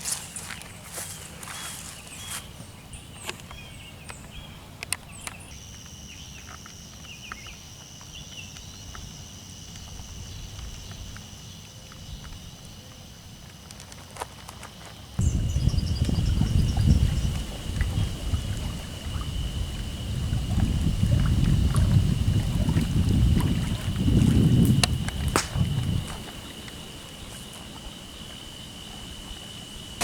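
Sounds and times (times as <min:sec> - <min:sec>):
footsteps: 0:00.0 - 0:02.6
low rumble: 0:15.2 - 0:26.1
wind and rain: 0:15.2 - 0:30.0.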